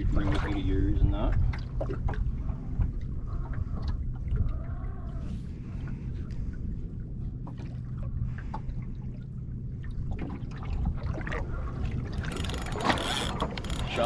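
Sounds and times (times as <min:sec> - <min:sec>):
water lapping against boat hull: 0:00.0 - 0:14.0
steady low rumble: 0:01.3 - 0:14.0
small clicks and knocks: 0:12.1 - 0:14.0.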